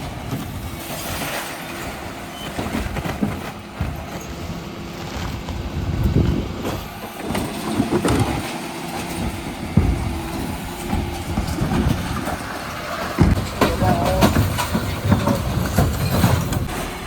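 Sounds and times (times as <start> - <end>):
refuse lorry engine rumbling: 0.0 - 17.0
knocks and clatters: 6.2 - 17.0.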